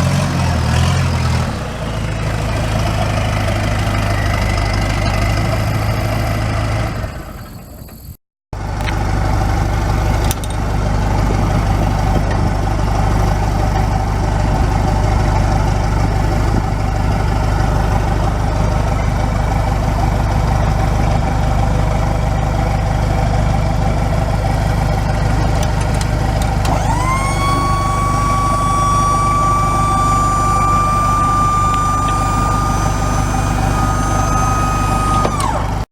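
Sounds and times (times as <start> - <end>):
truck engine idling: 0.0 - 35.9
high whine: 25.6 - 35.8.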